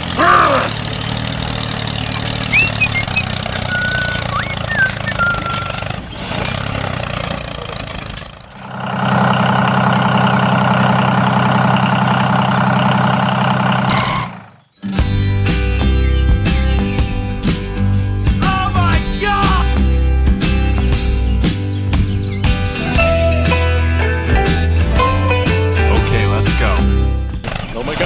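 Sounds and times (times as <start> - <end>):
small engine running: 0.0 - 14.8
steady engine hum: 0.0 - 27.4
squeaky glides: 0.2 - 12.0, 13.8 - 14.7.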